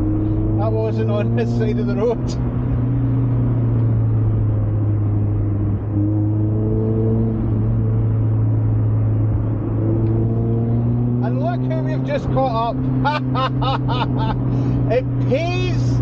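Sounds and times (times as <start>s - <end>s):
car engine running: 0.0s - 16.0s
tyre and road rumble: 0.0s - 16.0s.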